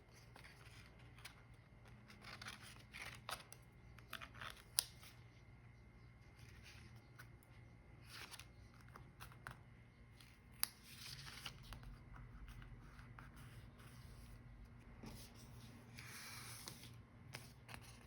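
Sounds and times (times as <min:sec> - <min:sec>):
paper rustling: 0:15.0 - 0:18.0.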